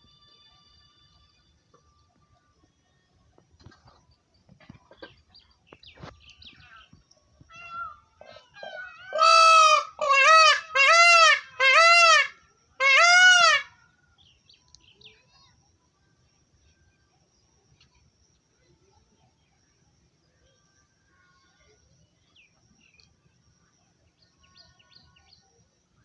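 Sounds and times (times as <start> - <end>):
parrot loud drawn-out calls: 7.6 - 13.8.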